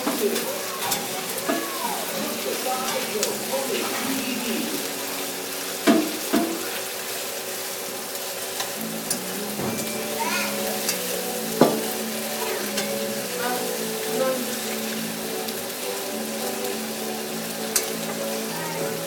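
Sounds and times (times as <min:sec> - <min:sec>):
food sizzling in oil: 0:00.0 - 0:19.0
utensil knocking against pan: 0:11.6 - 0:11.9.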